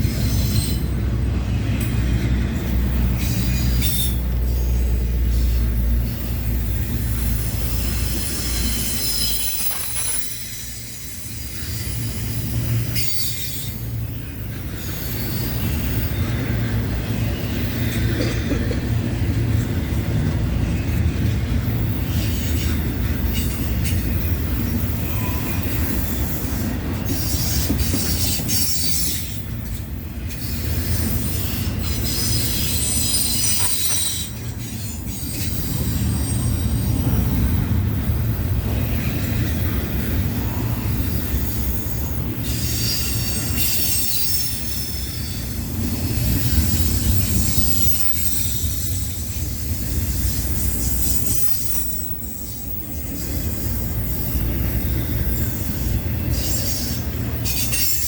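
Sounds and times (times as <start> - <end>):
freight train rumbling past: 0.0 - 58.0
steel wheel squeal: 3.1 - 16.4, 21.9 - 29.5, 30.3 - 37.3, 41.8 - 58.0.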